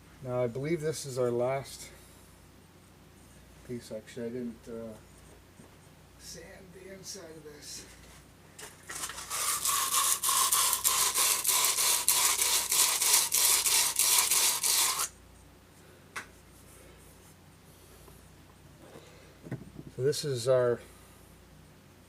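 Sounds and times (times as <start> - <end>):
sandpaper rasping on metal: 8.9 - 15.1.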